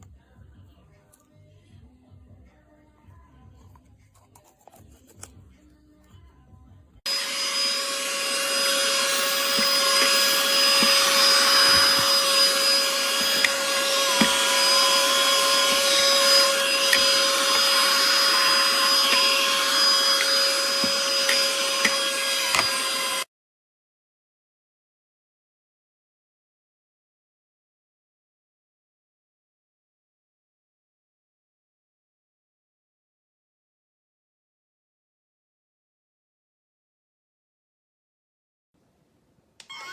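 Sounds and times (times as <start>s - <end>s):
handheld vacuum running: 7.1s - 23.3s.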